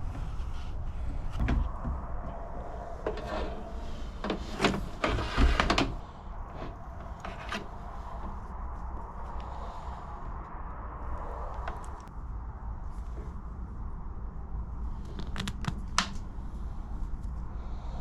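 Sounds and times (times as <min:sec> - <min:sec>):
handling clicks knocks and scrapes: 0:00.0 - 0:08.4.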